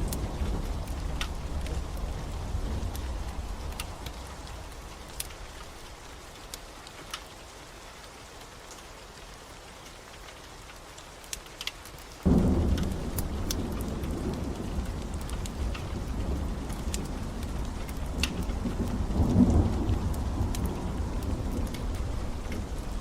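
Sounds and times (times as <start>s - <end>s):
thunder rumbling: 0.0s - 6.0s, 12.2s - 23.0s
wood fire crackling: 0.0s - 7.5s, 9.8s - 23.0s
steady rain: 0.0s - 23.0s.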